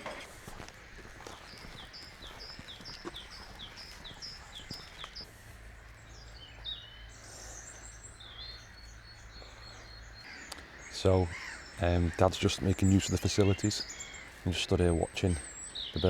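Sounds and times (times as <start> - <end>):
small birds singing: 0.0 - 16.0.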